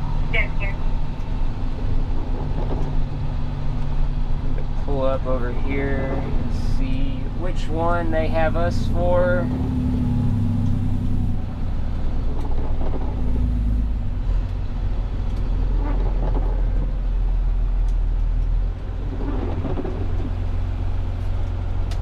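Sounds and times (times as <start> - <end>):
truck diesel engine rumble: 0.0 - 22.0.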